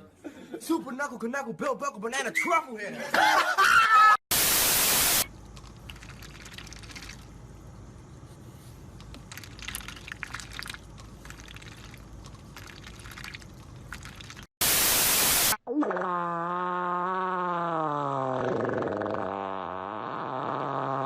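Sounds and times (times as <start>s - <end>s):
loud static hiss: 4.3s - 5.3s, 14.6s - 15.6s.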